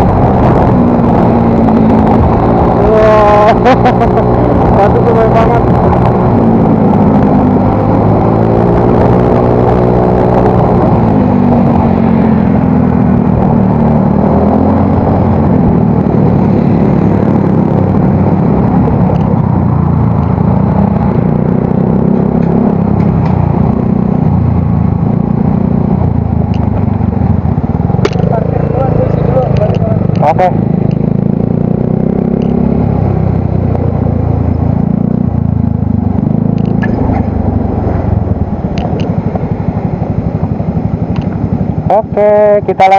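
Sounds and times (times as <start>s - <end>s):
scooter engine running: 18.9s - 42.9s.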